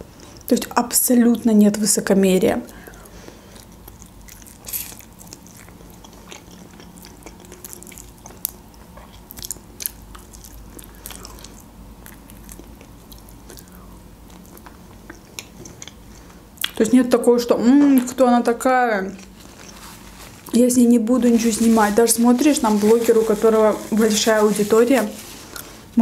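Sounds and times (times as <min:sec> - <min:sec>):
chewing and biting chicken: 0:02.7 - 0:16.8.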